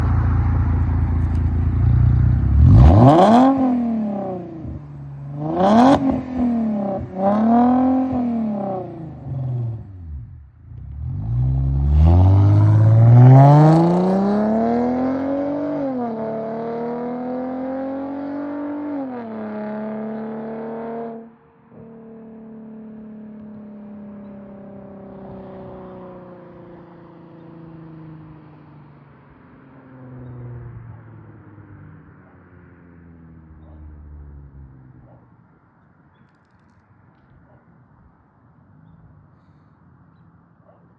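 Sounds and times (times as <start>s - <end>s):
car engine revving: 0.0s - 21.2s.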